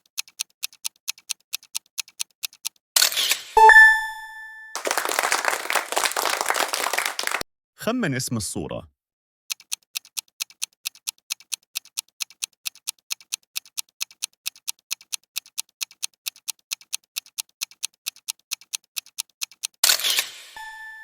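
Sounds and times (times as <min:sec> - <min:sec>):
clock ticking: 0:00.0 - 0:02.8, 0:09.5 - 0:19.8.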